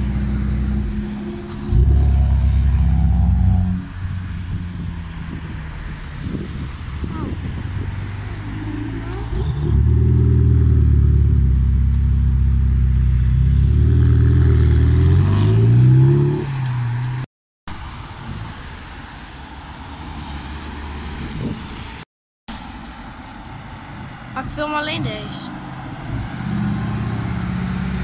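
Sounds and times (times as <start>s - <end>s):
sports car engine revving: 0.0s - 5.1s
passing traffic: 0.0s - 28.0s.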